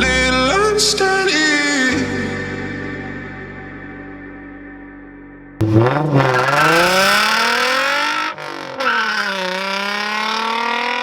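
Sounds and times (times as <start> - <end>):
vehicle engine accelerating: 5.6 - 11.0.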